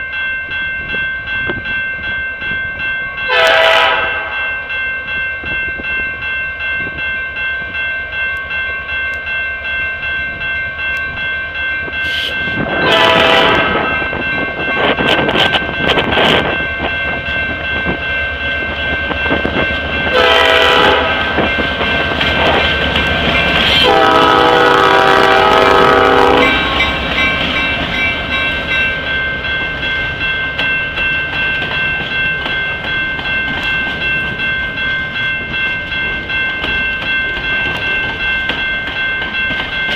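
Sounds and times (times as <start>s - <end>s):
crossing bell ringing: 0.0s - 39.9s
train wheels on rails: 0.5s - 39.9s
train air horn blasts: 3.3s - 4.4s, 12.0s - 14.0s, 20.1s - 21.4s, 23.7s - 26.8s.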